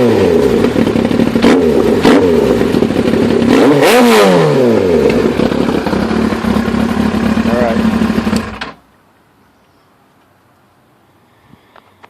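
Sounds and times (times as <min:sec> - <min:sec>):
motorcycle engine idling and revving: 0:00.0 - 0:08.8.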